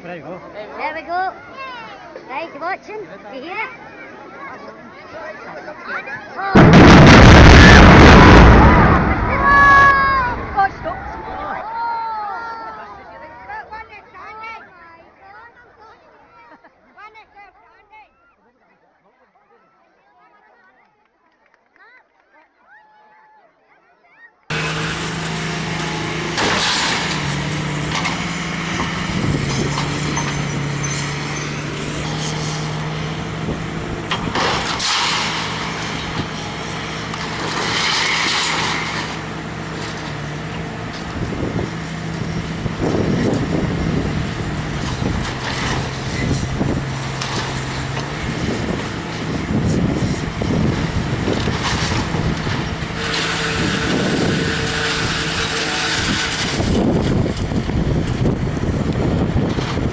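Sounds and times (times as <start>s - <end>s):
crunching noise: 6.6s - 9.9s, 24.5s - 59.9s
hissing bursts: 24.5s - 57.6s
excavator diesel engine under load: 24.5s - 59.9s.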